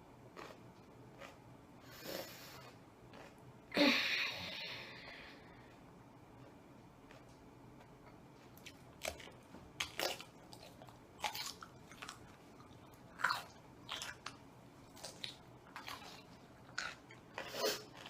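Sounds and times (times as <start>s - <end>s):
person crunching cucumber: 0.3s - 1.4s, 2.6s - 3.4s, 6.4s - 18.0s.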